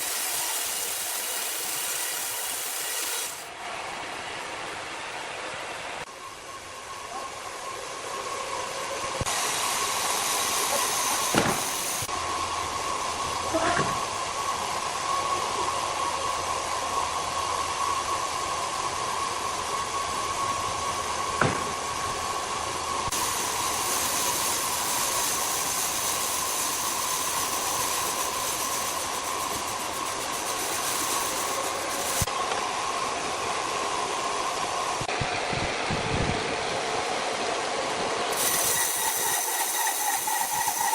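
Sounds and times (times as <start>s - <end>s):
wood-cutting machinery running: 0.0s - 3.5s, 23.1s - 32.3s, 38.3s - 40.9s
machine whine: 6.0s - 32.8s, 38.3s - 40.9s.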